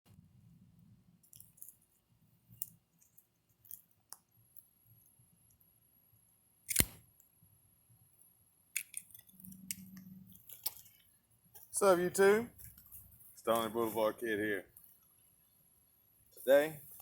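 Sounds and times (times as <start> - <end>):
small clicks: 6.7 - 7.3.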